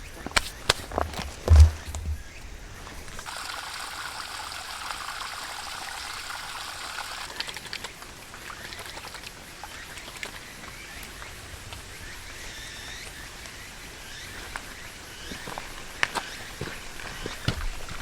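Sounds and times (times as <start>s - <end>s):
water dripping: 0.9s - 11.8s
water pouring: 3.1s - 10.3s.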